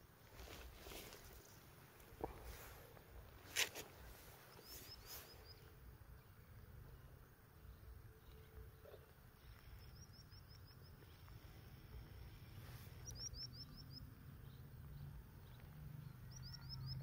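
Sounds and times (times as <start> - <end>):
small bird chirping: 4.2 - 17.0.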